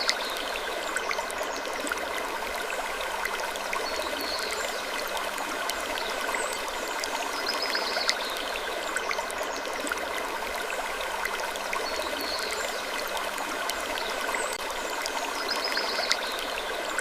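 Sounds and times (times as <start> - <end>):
water trickling: 0.0 - 17.0.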